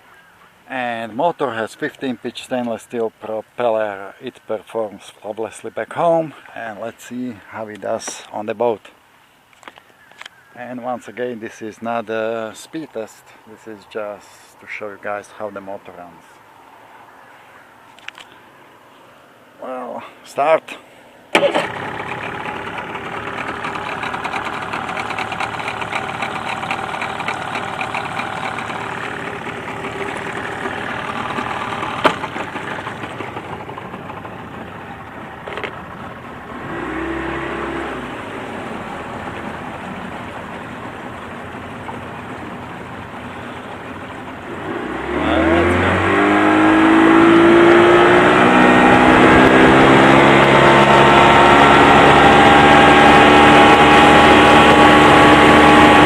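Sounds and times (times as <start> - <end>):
outboard motor running: 21.4 - 56.0.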